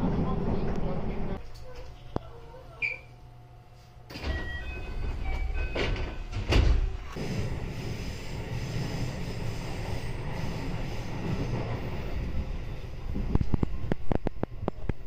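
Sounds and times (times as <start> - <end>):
train wheels rumbling on track: 4.4 - 15.0.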